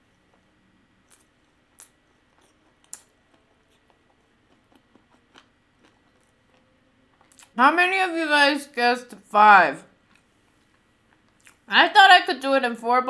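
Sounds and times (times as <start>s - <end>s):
wet mouth clicks chewing: 1.1s - 7.5s.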